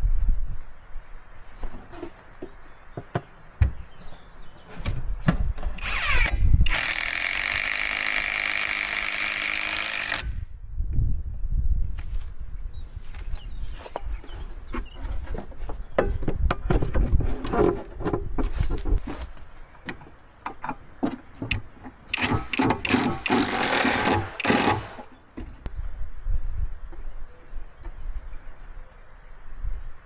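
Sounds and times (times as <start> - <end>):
tool scraping: 21.1 - 25.7.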